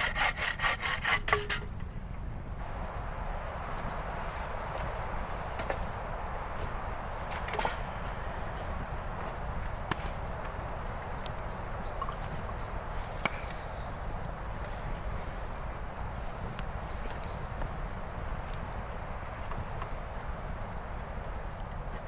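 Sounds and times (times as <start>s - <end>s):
sharp knocks: 9.9s - 10.2s
small bird chirping: 10.9s - 14.0s.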